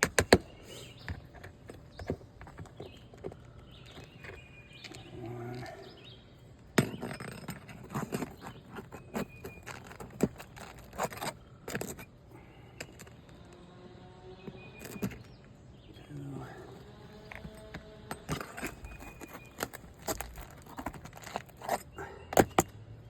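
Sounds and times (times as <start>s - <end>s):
hand tool scraping shingles: 6.8s - 13.5s, 16.0s - 22.7s.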